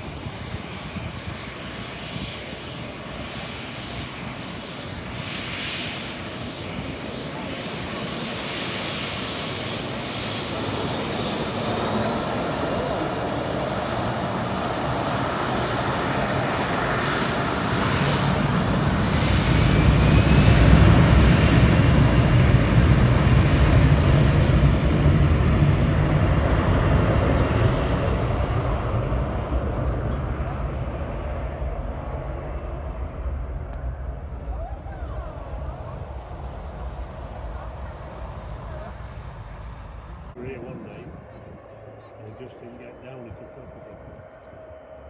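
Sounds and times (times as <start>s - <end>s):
airliner engines roaring: 0.0s - 45.0s
deep rumble: 20.5s - 42.2s.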